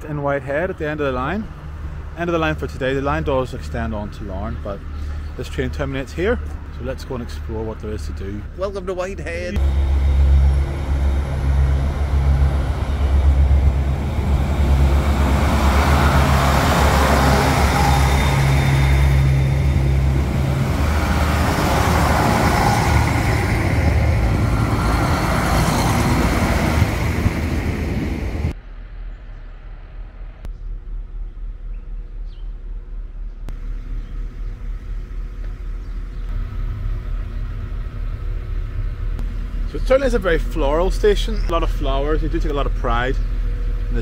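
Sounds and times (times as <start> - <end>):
train rushing noise: 0.0 - 29.2
diesel train engine rumble: 0.0 - 44.0.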